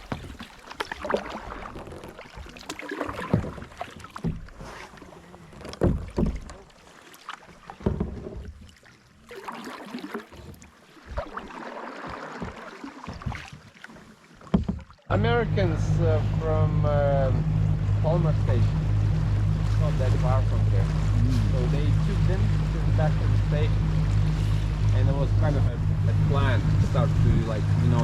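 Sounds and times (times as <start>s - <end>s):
paddle knocking against kayak: 0.0s - 8.8s, 10.0s - 15.7s
paddle splashing water: 0.0s - 28.0s.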